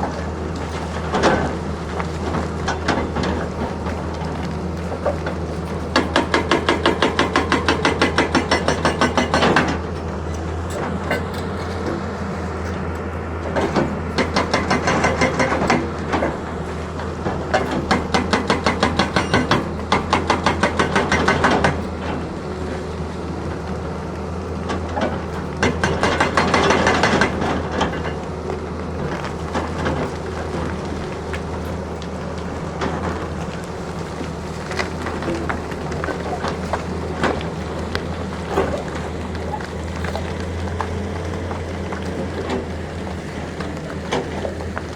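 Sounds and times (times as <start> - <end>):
excavator engine running: 0.0 - 44.9
rapid rhythmic hammering: 5.9 - 9.7.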